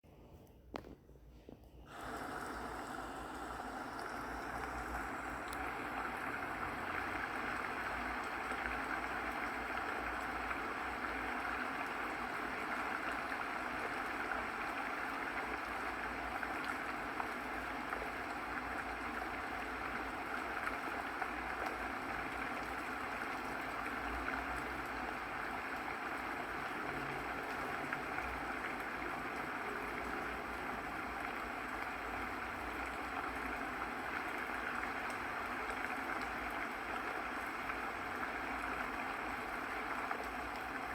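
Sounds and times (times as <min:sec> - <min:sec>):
running water rushing: 0:01.9 - 0:40.9.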